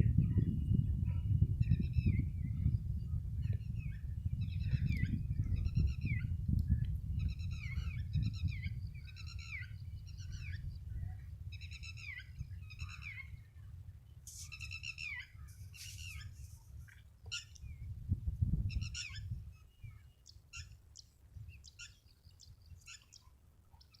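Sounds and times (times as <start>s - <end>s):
birds chirping: 7.2s - 13.4s, 14.2s - 17.9s, 18.7s - 24.0s.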